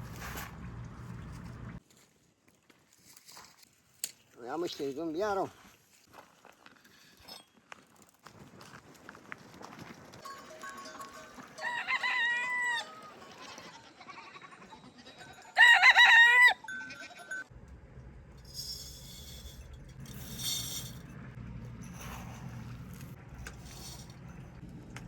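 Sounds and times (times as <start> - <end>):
rooster crowing: 11.5 - 13.4, 15.4 - 17.2
steady low hum: 17.5 - 25.0.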